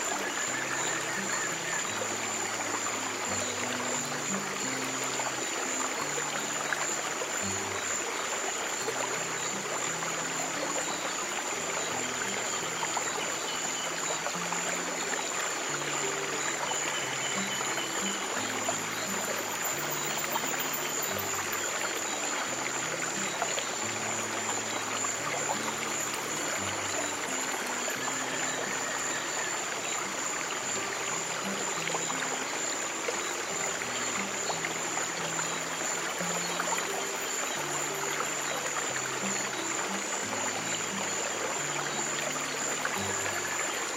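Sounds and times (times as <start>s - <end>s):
soft low music notes: 0.0s - 43.9s
stream water trickling: 0.0s - 43.9s
thin steady high tone: 9.2s - 43.9s.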